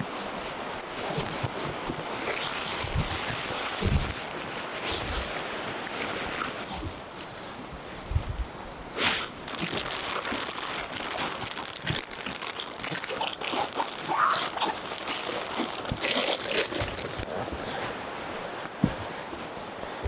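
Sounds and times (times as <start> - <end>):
plastic tarp crinkling: 8.9 - 17.9.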